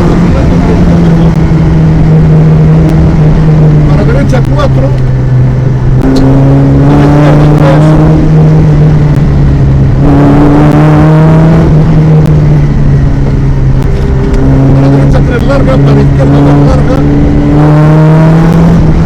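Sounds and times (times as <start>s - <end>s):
car engine accelerating from cabin: 0.0s - 19.0s.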